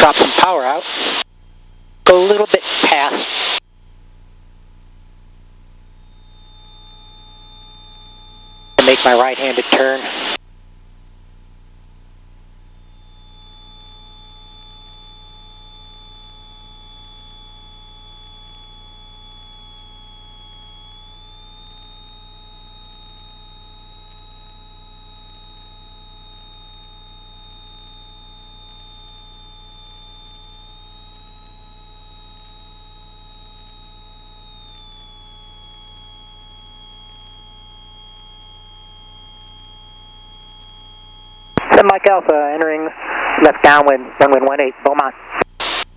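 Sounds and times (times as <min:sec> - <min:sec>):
thin high-pitched whine: 0:06.0 - 0:10.4, 0:12.6 - 0:45.9
aircraft engine drone: 0:06.1 - 0:10.4.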